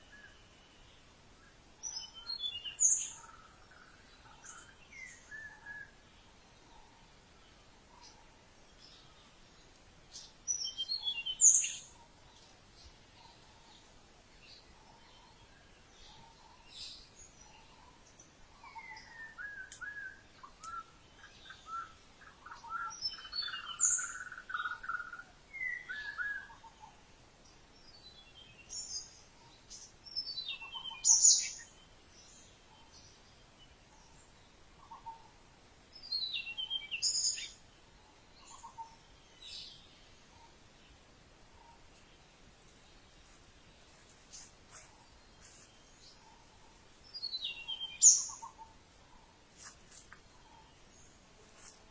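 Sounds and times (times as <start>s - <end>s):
birds chirping: 0.0s - 51.9s.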